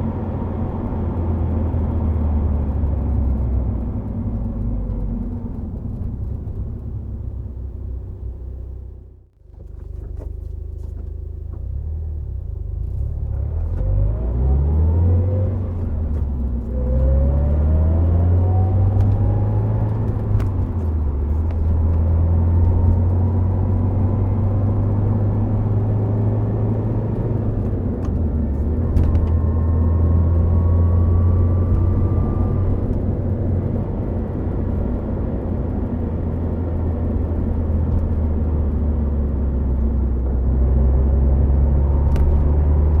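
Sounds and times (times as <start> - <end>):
car engine accelerating: 0.0 - 43.0
gear shifts: 18.4 - 40.4.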